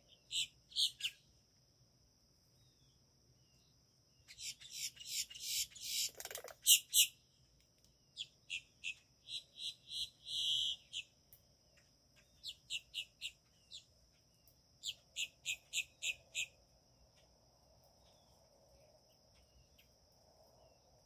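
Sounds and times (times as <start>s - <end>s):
high sharp bird chirps: 4.3s - 7.2s, 8.2s - 11.1s.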